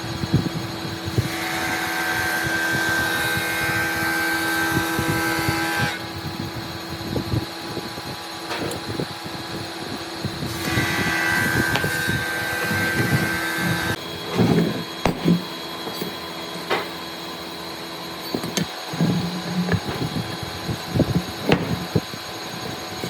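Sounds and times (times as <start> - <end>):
power tool whining: 0.0 - 23.0
knocks and clicks of wood: 21.5 - 22.0.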